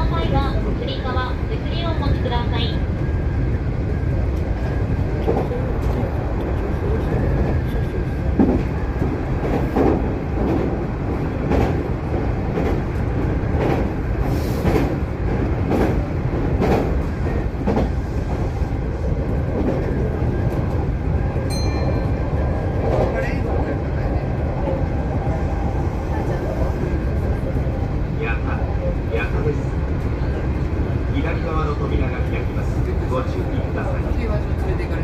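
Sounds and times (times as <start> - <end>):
electric train rumbling: 0.0 - 35.0
train wheels clacking over rail joints: 13.5 - 18.0.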